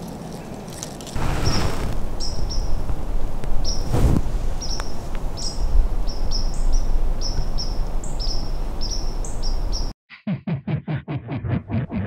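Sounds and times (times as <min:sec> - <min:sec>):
bird chirping: 0:02.2 - 0:02.8, 0:03.6 - 0:03.9, 0:04.6 - 0:09.9.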